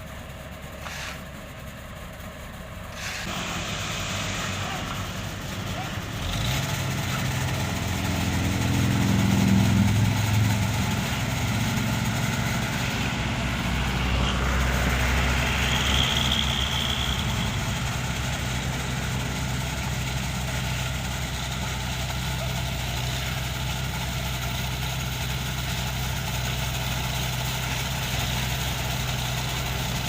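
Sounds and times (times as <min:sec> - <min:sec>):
heavy diesel engine running: 0:00.0 - 0:30.0
high whine: 0:07.0 - 0:20.8.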